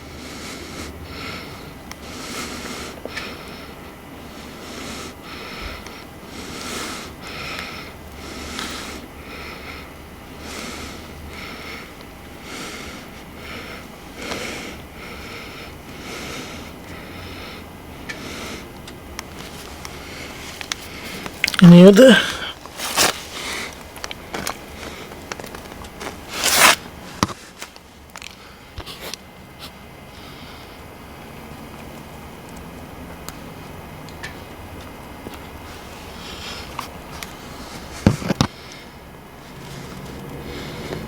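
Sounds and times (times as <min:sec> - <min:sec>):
person breathing close: 0:00.0 - 0:18.8, 0:19.4 - 0:23.8, 0:35.6 - 0:41.0.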